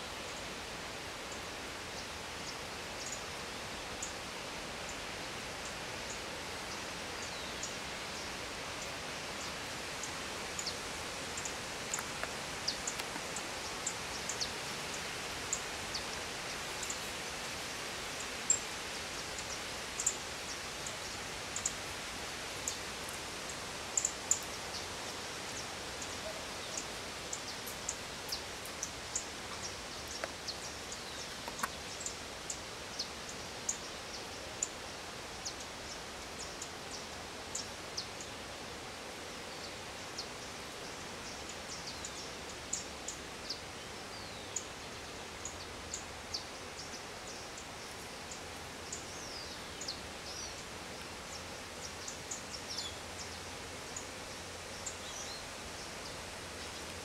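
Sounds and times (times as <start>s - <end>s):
outdoor background hiss: 0.0s - 57.0s
small birds chirping: 24.0s - 38.3s.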